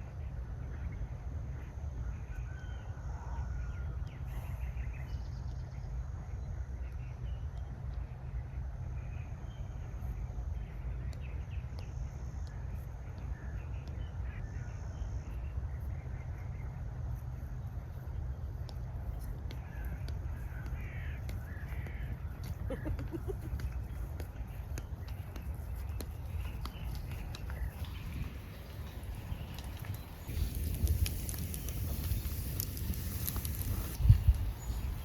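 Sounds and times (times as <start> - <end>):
birds calling: 1.7 - 35.0
rain: 27.8 - 35.0.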